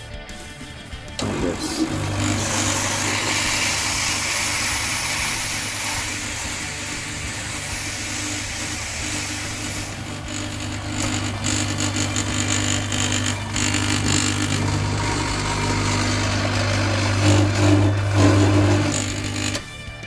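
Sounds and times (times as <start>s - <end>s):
steam hissing from wand: 1.2s - 17.2s
pump buzzing: 1.2s - 19.9s.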